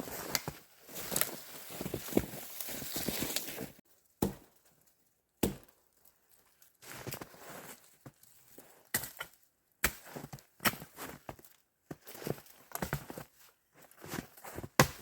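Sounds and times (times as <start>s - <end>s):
crunching in snow: 0.0s - 3.8s.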